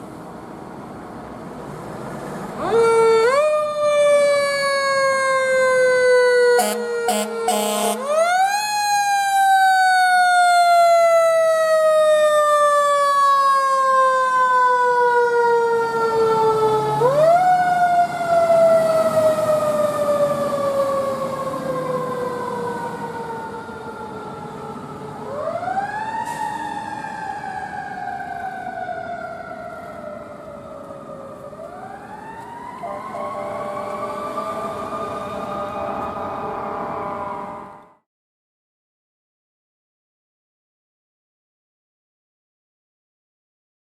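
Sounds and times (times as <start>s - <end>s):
fire engine siren winding: 2.6s - 38.0s.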